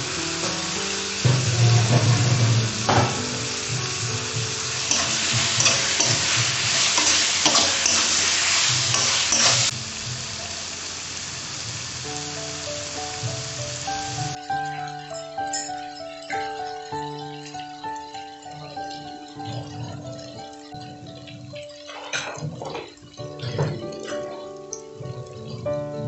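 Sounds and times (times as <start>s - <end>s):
vegetables sizzling in hot oil: 0.0s - 26.0s
metal spatula scraping pan: 4.9s - 9.7s.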